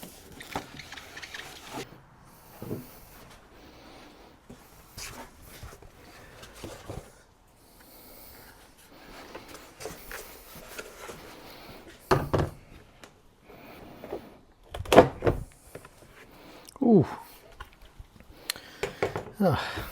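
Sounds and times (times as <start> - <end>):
plastic covers being handled: 0.0 - 1.8.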